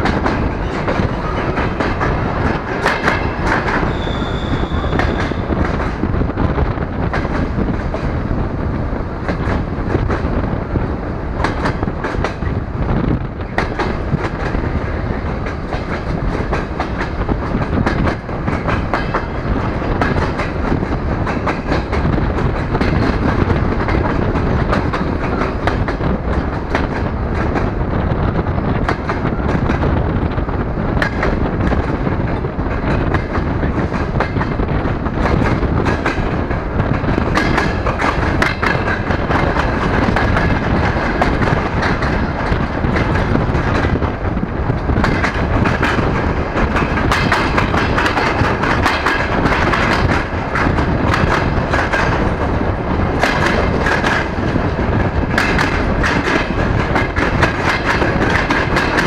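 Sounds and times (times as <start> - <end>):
train rolling with wind noise: 0.0 - 59.0
wheels clattering over track: 35.2 - 59.0.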